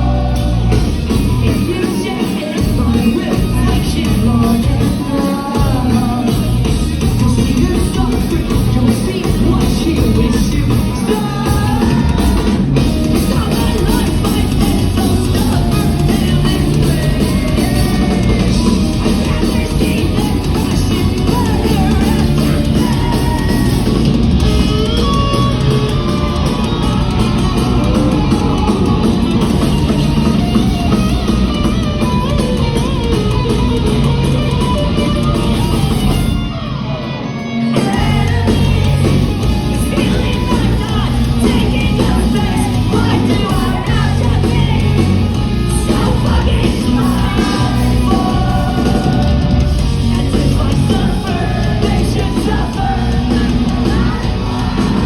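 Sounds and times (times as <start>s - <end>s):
sung and shouted vocals: 0.0s - 29.3s, 37.6s - 55.0s
drums: 0.0s - 55.0s
electric guitars: 0.0s - 55.0s.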